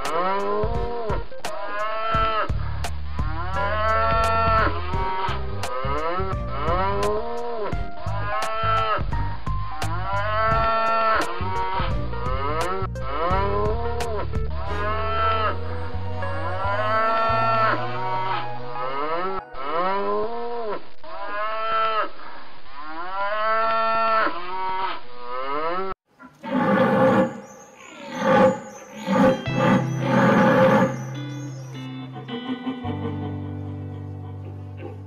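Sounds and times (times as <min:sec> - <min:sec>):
animal calling: 0:26.2 - 0:35.0
plucked guitar music: 0:29.4 - 0:35.0.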